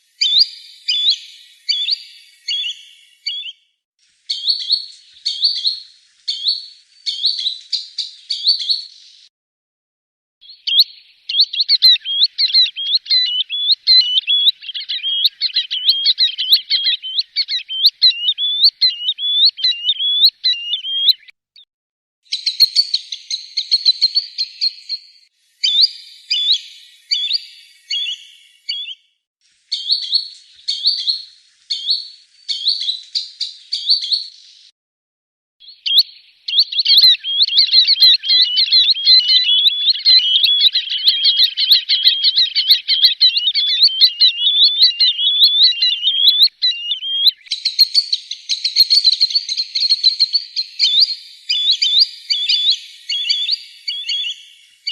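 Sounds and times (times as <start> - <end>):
sandpiper whistled calls: 0.2 - 3.6, 10.5 - 21.3, 25.6 - 29.0, 35.6 - 54.9.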